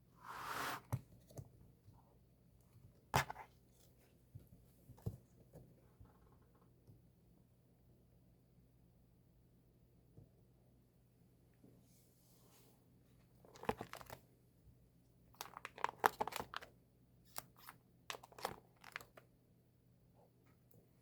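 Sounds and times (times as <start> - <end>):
packaging crinkling and tearing: 15.4 - 16.7, 17.3 - 19.2.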